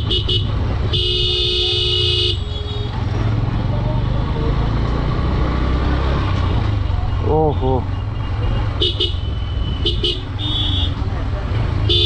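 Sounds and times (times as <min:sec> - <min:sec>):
vehicle horn blast: 0:00.0 - 0:03.0, 0:08.8 - 0:11.0
motorcycle running: 0:00.0 - 0:12.0.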